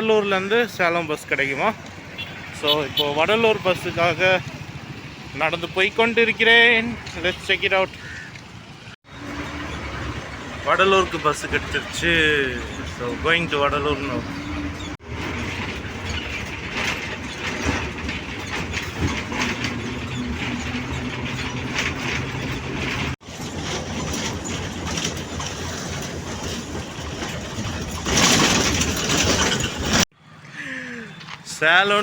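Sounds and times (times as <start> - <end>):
bus body rattling: 0.0 - 30.1
bus engine hum: 8.4 - 31.4.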